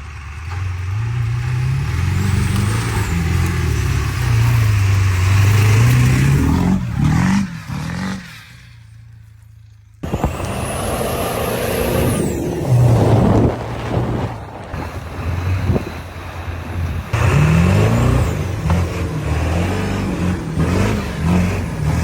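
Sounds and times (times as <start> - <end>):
truck engine revving: 0.0 - 9.1, 10.0 - 22.0.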